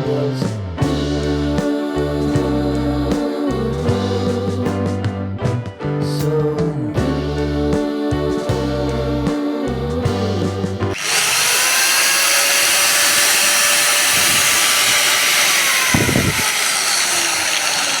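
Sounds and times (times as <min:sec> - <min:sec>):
background music: 0:00.0 - 0:11.0
angle grinder whining: 0:10.9 - 0:18.0.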